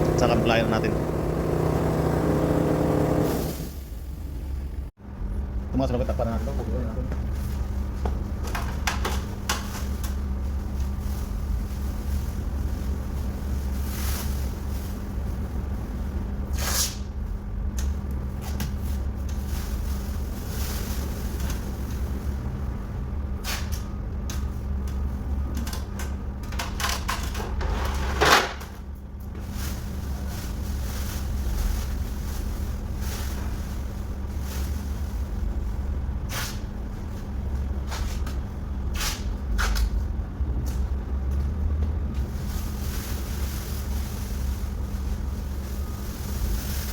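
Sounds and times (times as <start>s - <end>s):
steady low hum: 0.0s - 26.6s.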